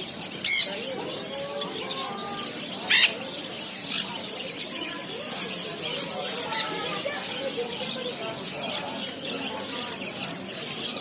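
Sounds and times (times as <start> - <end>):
caged birds squawking and chirping: 0.0 - 11.0
loud harsh bird squawk: 2.9 - 3.2.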